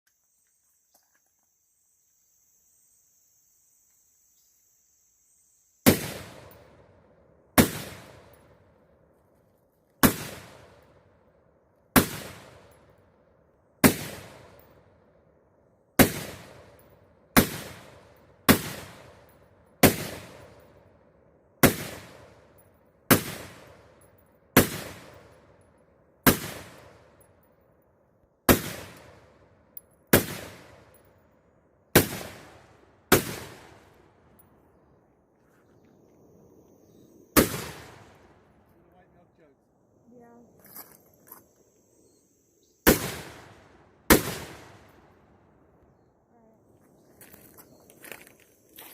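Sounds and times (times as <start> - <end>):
pistol shots echoing: 7.6 - 8.4, 10.0 - 10.8, 12.0 - 12.8, 13.8 - 14.7, 16.0 - 20.6, 21.6 - 22.3, 23.1 - 24.0, 24.6 - 25.4, 26.2 - 27.2, 28.5 - 29.2, 30.1 - 31.0, 31.9 - 33.9, 42.9 - 44.9.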